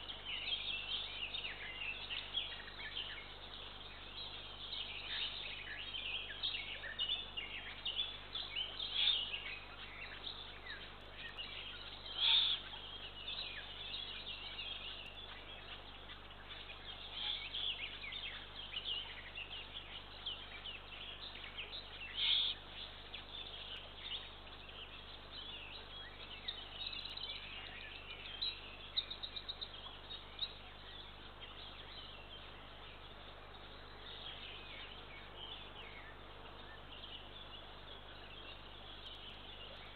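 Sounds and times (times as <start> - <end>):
small birds chirping: 0.0 - 39.9
loud noisy bird calls: 12.1 - 12.9, 16.4 - 18.1, 21.8 - 23.2.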